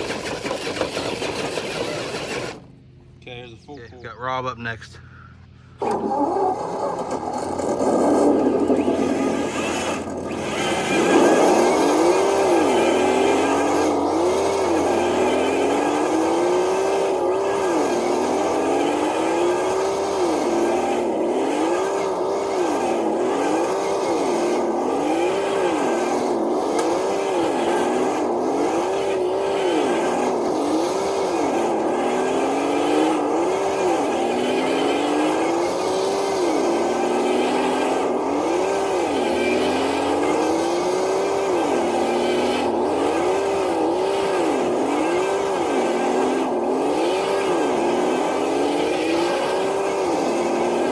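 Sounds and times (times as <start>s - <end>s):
toy truck electric motor whining: 0.0s - 2.7s, 5.7s - 50.9s.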